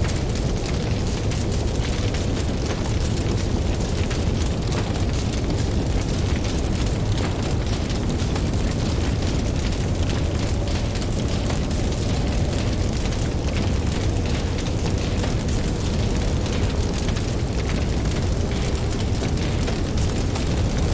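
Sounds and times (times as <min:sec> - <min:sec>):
campfire crackling: 0:00.0 - 0:20.9.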